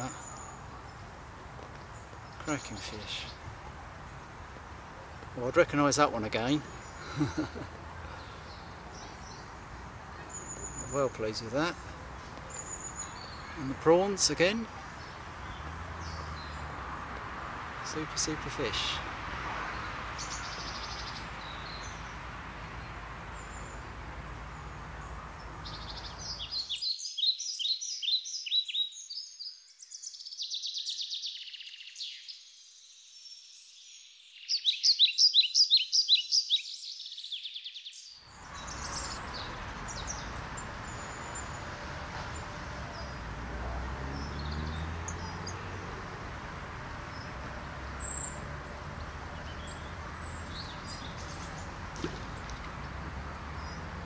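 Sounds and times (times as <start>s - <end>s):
songbird chirping trills: 0.0s - 19.1s, 19.7s - 54.0s
faint bird chirp: 6.6s - 11.2s.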